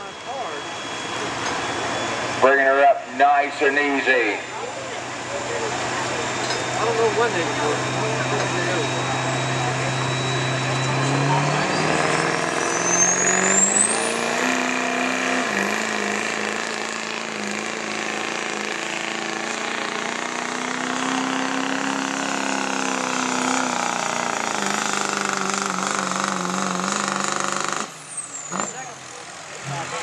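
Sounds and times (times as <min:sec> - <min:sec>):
diesel engine running hard: 0:00.0 - 0:30.0
turbo whistle: 0:06.4 - 0:15.8.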